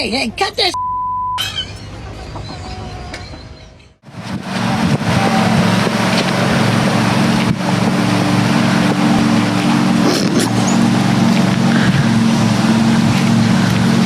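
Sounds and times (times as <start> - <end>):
rushing wind or water: 4.0 - 14.0
motor running: 4.3 - 14.0.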